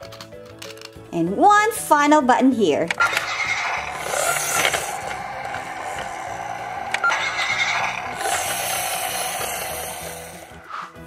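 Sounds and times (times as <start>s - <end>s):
sharp clicks: 2.9s - 8.8s
toy electronic sound effect: 2.9s - 10.6s.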